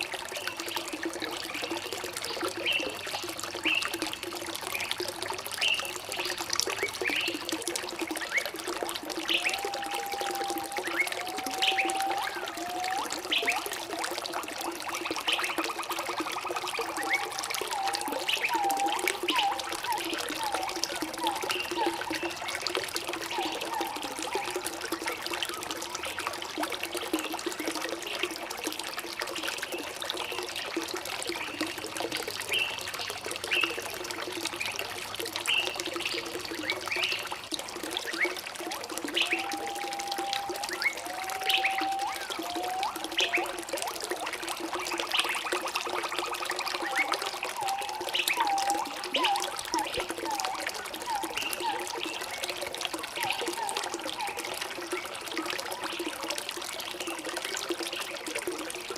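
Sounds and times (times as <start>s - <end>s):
water trickling: 0.0s - 58.9s
whistled bird notes: 9.2s - 13.7s, 16.9s - 22.7s, 23.3s - 25.1s, 39.1s - 43.6s, 46.3s - 52.4s, 53.2s - 55.0s
birds chirping: 16.9s - 22.6s, 39.1s - 43.5s.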